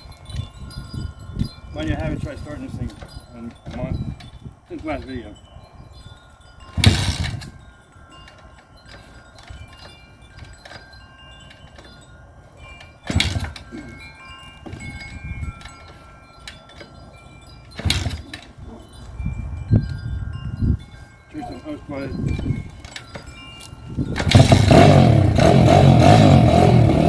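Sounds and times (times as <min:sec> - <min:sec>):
wind chimes ringing: 0:00.0 - 0:27.0
pit bike kick-start turnover: 0:13.1 - 0:13.6, 0:17.8 - 0:18.5, 0:24.1 - 0:26.8.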